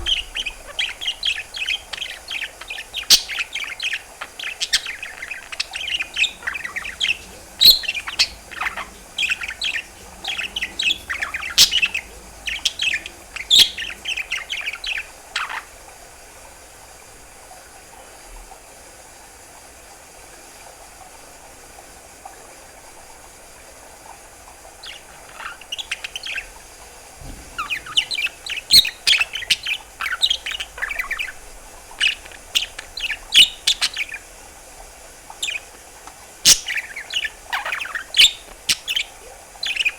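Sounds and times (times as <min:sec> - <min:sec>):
budgerigar chattering and warbling: 0:00.0 - 0:15.7, 0:27.6 - 0:34.3, 0:35.4 - 0:39.9.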